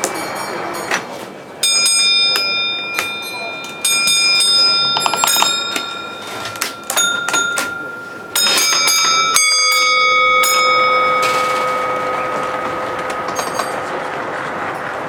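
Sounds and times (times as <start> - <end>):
signalling block bells ringing: 0.0 - 15.0.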